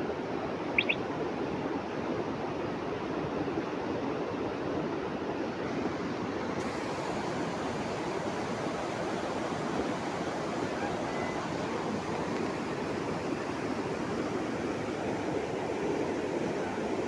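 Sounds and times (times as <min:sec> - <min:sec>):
fast-flowing water rushing: 0:05.6 - 0:17.0.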